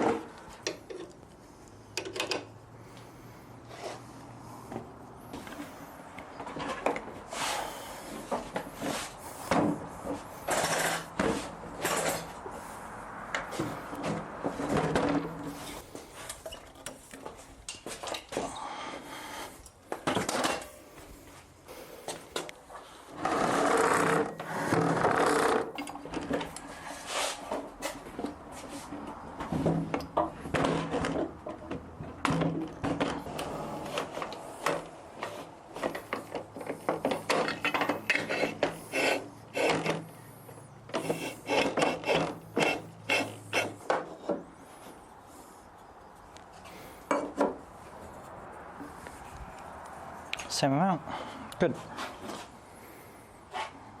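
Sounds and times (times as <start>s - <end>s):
knocks and clatter of wood and tools: 0.0s - 1.2s, 1.9s - 2.6s, 4.6s - 12.6s, 13.3s - 19.1s, 19.8s - 21.2s, 22.0s - 45.0s, 46.6s - 47.7s.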